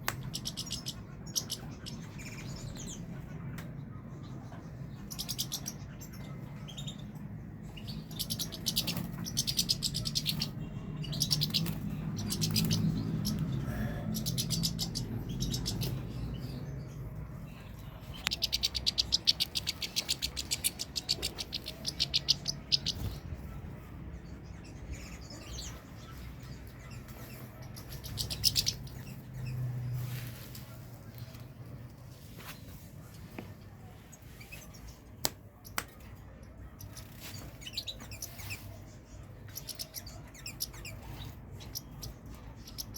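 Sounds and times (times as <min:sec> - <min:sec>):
bird twittering trills: 0:00.0 - 0:03.0, 0:04.6 - 0:23.5, 0:24.5 - 0:30.0.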